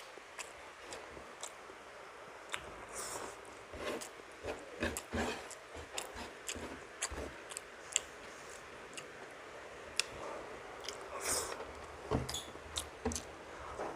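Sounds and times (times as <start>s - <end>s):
person chewing food: 0.0s - 1.6s, 2.5s - 9.2s, 10.8s - 13.3s.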